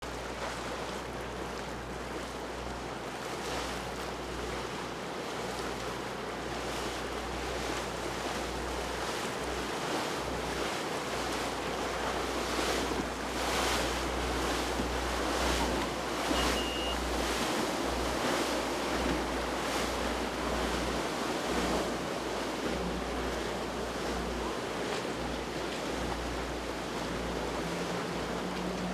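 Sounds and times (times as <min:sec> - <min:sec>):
water rushing and splashing: 0:00.0 - 0:28.9
high beep: 0:16.3 - 0:17.0.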